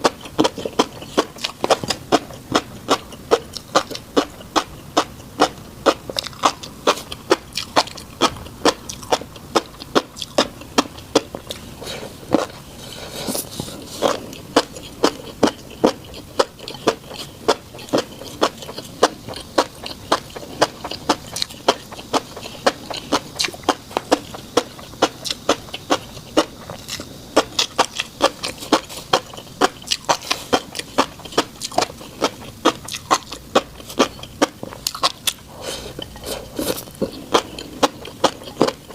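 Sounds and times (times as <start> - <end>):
fish roe popping while chewed: 13.3 - 38.9.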